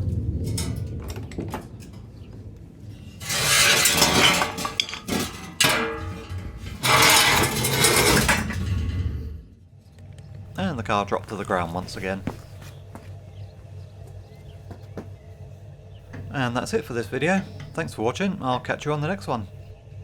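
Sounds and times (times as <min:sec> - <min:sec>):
metal ramps scraping on floor: 0:02.8 - 0:09.6.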